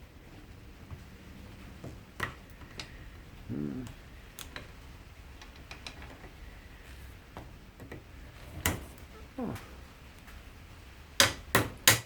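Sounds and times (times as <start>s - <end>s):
low vocal grunt: 3.4s - 4.1s, 9.2s - 9.8s.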